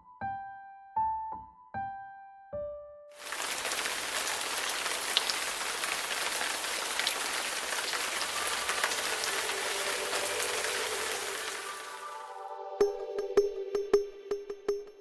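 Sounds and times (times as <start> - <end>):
rain falling: 3.2 - 12.4.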